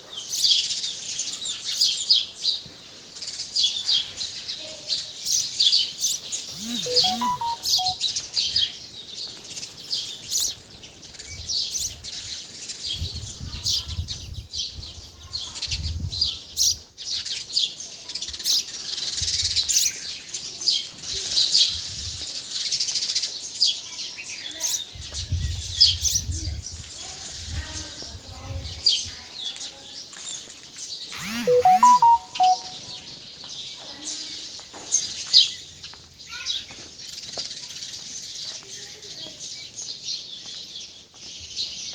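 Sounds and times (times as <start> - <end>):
sparrows chirping: 5.1 - 8.0.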